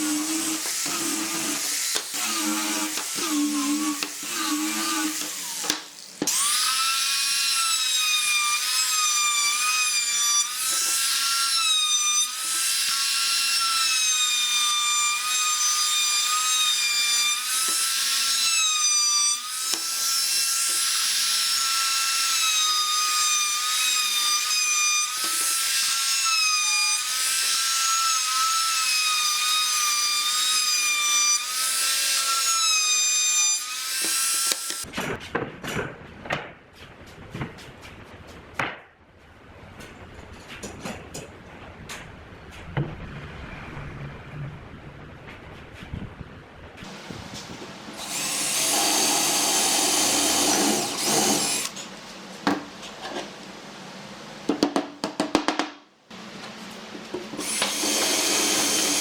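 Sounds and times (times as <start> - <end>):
power tool motor whine cutting wood: 48.0 - 51.8, 57.4 - 59.0.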